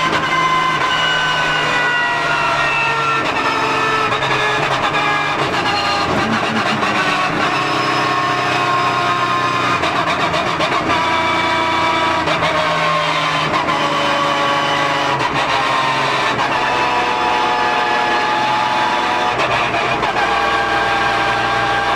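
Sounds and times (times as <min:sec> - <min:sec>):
race car engine revving: 0:00.0 - 0:21.9.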